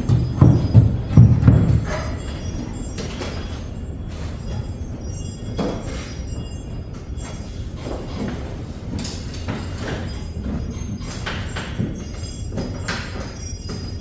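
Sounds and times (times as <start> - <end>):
metal rails knocking and scraping: 0.0 - 2.4.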